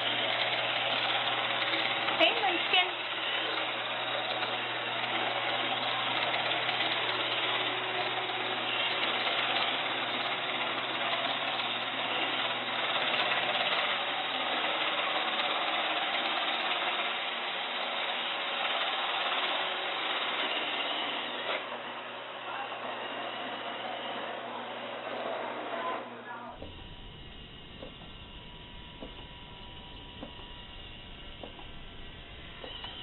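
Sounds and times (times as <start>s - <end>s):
robot vacuum cleaner whirring: 0.0s - 33.0s.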